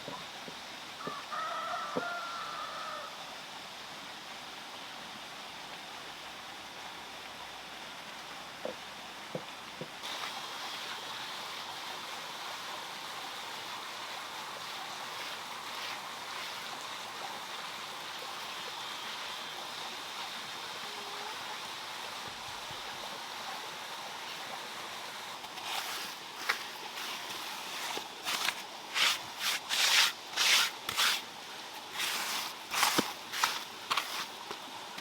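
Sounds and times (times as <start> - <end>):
running water splashing: 10.0 - 18.6, 25.0 - 35.0.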